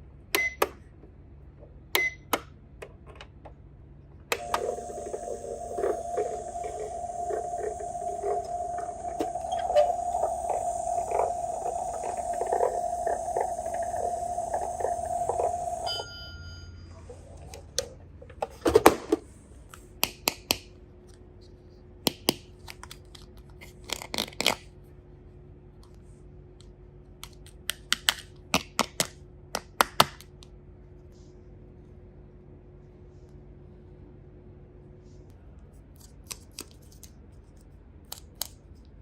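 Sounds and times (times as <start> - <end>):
toy microwave electronic hum: 4.3 - 17.9
short electronic beep: 4.4 - 16.8.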